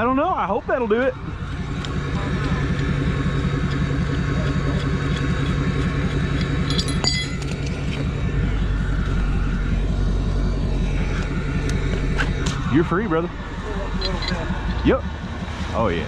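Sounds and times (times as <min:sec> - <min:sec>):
vehicle engine running: 0:00.0 - 0:16.0
short metallic clinks: 0:06.4 - 0:07.7, 0:13.9 - 0:14.5.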